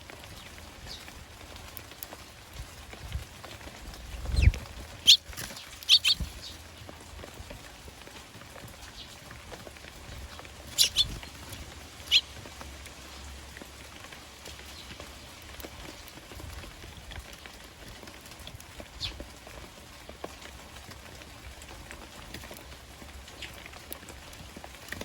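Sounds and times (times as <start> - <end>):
rain pattering: 0.0 - 25.0
sparrows chirping: 0.2 - 2.2, 3.9 - 7.2, 8.8 - 13.6, 14.4 - 16.1, 18.8 - 19.4, 23.3 - 23.9.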